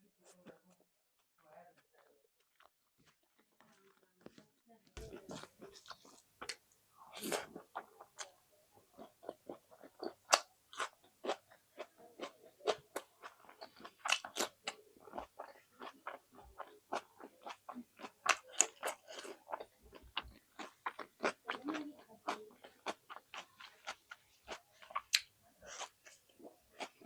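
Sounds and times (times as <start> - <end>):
chewing with wet mouth smacks: 5.0 - 27.0.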